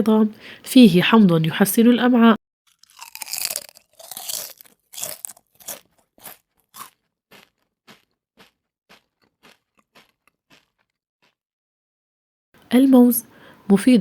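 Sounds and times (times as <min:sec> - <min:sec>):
child chewing crunchy fruit: 0:02.7 - 0:11.4.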